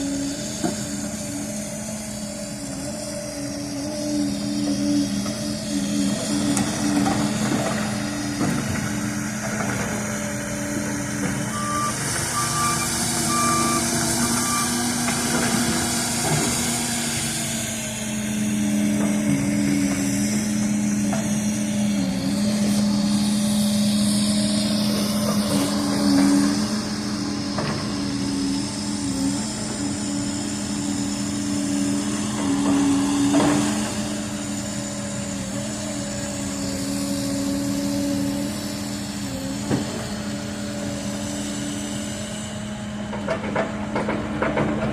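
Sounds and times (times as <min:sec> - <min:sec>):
excavator diesel engines running: 0:00.0 - 0:44.9
high warning beeps: 0:11.5 - 0:14.9.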